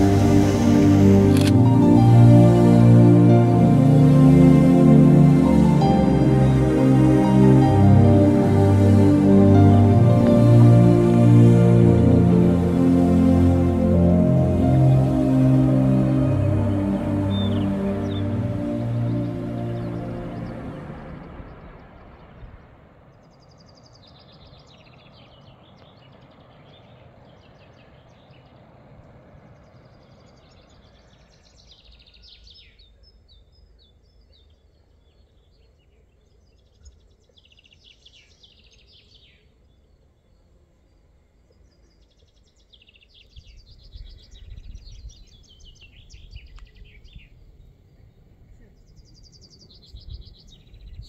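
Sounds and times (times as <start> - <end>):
low rumble: 0.0 - 23.2
small birds chirping and trilling: 16.3 - 51.0.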